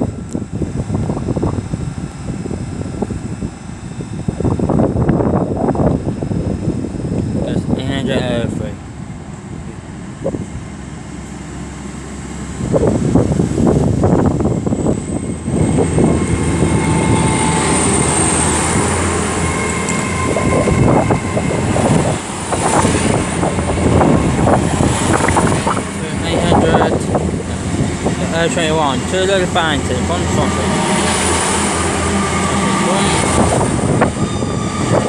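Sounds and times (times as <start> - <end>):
train passing: 0.0 - 35.0
train wheels clattering on track: 15.8 - 24.2.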